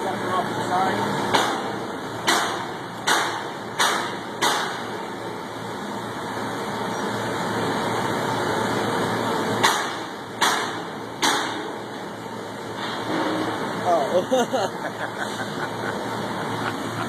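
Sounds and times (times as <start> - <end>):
machinery noise: 0.0 - 17.0
sharp knocks: 1.3 - 4.9, 9.6 - 11.7.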